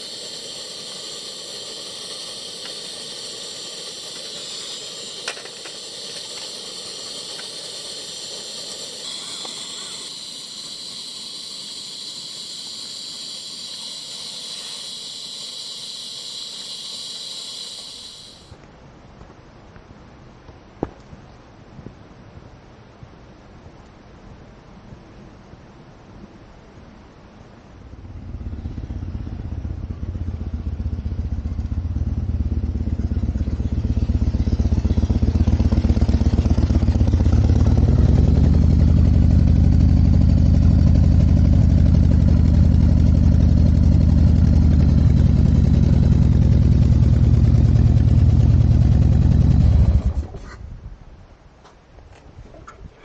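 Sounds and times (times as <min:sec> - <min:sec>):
motorcycle engine running: 0:00.0 - 0:18.6, 0:27.9 - 0:50.4.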